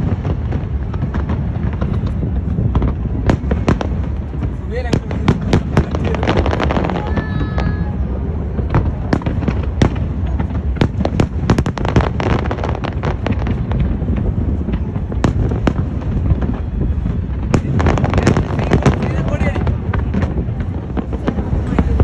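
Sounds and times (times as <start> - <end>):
fireworks cracks and bangs: 0.0 - 22.0
low rumble: 0.0 - 22.0.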